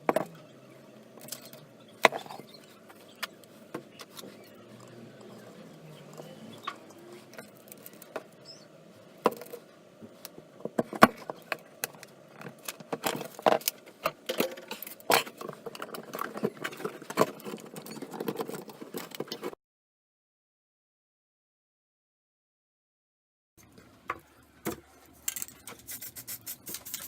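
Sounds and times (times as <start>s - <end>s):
objects clicking and knocking: 10.2s - 19.6s, 24.1s - 27.0s.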